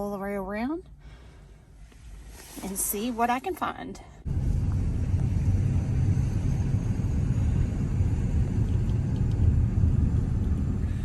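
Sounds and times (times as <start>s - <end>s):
car driving on road: 4.2s - 11.0s.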